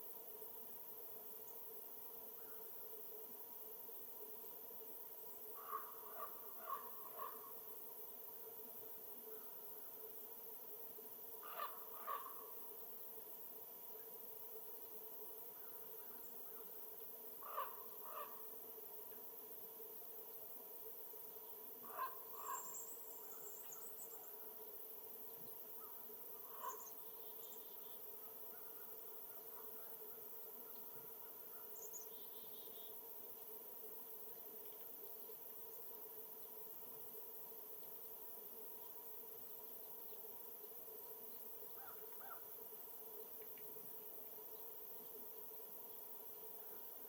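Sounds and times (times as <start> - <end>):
low hum and hiss: 0.0 - 47.0
faint bird calls: 5.6 - 7.7, 11.4 - 12.7, 17.4 - 18.5, 21.8 - 24.4, 25.8 - 33.0, 41.7 - 42.5
faint high thin bird calls: 11.4 - 12.5, 17.4 - 18.4, 21.9 - 24.2, 25.8 - 27.8, 41.8 - 42.5
short bird calls: 11.4 - 12.5, 17.4 - 18.4, 21.9 - 22.8.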